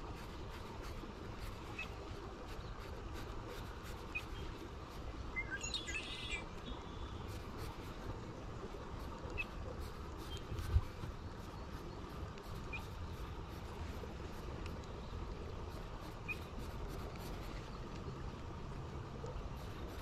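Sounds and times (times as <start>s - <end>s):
bird chirps and calls: 5.4s - 7.1s.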